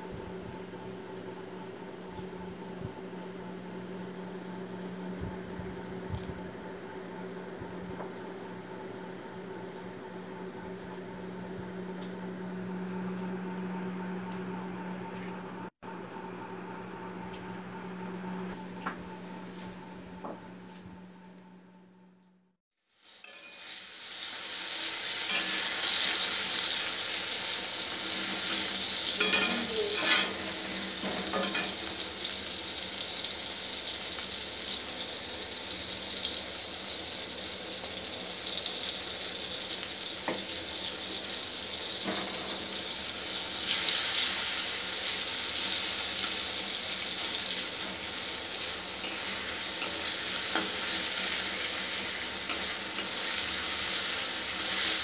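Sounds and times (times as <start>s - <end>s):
tomatoes sizzling in oil: 22.7s - 55.0s
spatula scraping and tapping wok: 23.2s - 23.9s, 25.1s - 26.3s, 28.0s - 32.0s.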